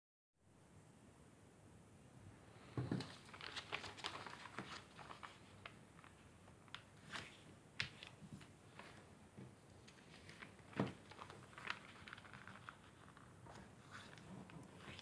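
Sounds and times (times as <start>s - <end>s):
paper rustling and crinkling: 2.8s - 15.0s.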